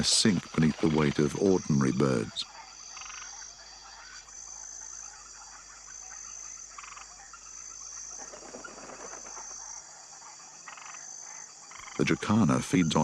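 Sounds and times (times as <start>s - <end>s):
frogs croaking: 0.0s - 13.0s
rustle: 4.1s - 11.0s.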